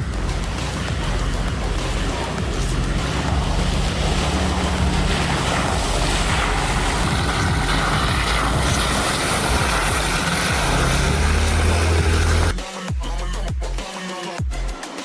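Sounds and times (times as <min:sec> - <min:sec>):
broad rushing noise: 0:00.0 - 0:12.6
vehicle engine running: 0:00.0 - 0:12.6.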